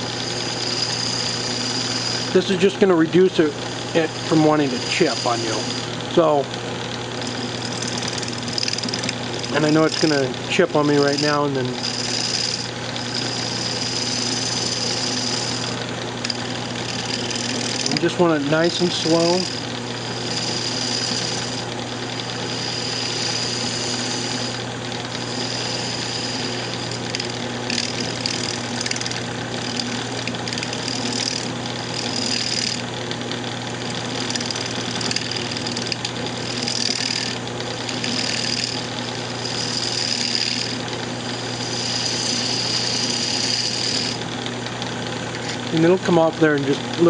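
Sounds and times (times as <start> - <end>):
lathe motor humming: 0.0 - 47.0
gouge scraping hiss: 0.6 - 2.3, 3.9 - 5.8, 11.8 - 15.8, 18.7 - 21.6, 22.4 - 24.6, 25.2 - 26.9, 39.4 - 40.8, 41.5 - 44.2.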